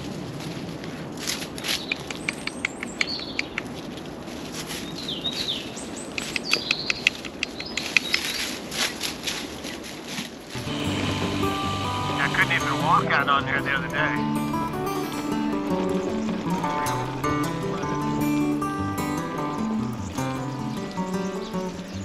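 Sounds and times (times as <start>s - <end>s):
small birds chirping: 1.6s - 4.0s, 4.7s - 8.7s, 10.6s - 22.0s
sharp ticking bird calls: 1.7s - 3.8s, 5.0s - 8.6s, 10.6s - 22.0s
steady outdoor hum: 10.5s - 22.0s.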